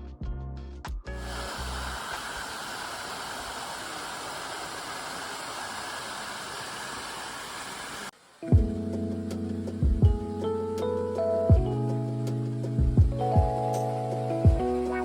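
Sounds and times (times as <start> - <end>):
waterfall rushing: 1.2 - 8.1
guitar music: 8.4 - 15.0.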